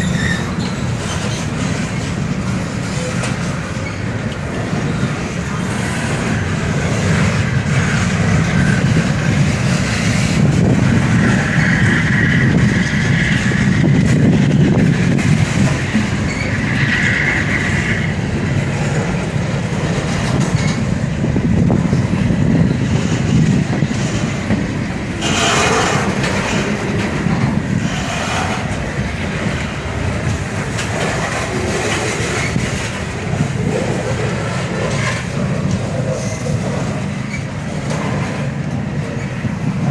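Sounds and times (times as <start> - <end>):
wheel squeals: 0.0 - 2.1, 3.7 - 4.2, 16.1 - 17.8
train wheels rumbling on rails: 0.0 - 39.9.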